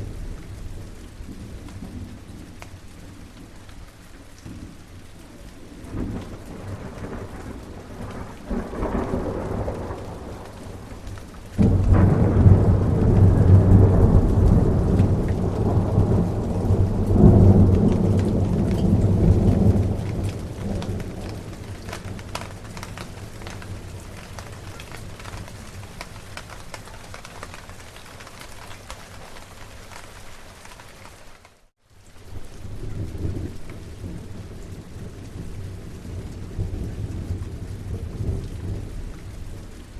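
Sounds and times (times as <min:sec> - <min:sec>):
steady rain: 0:00.0 - 0:39.9
thunder rumbling: 0:04.4 - 0:29.7, 0:32.4 - 0:39.9.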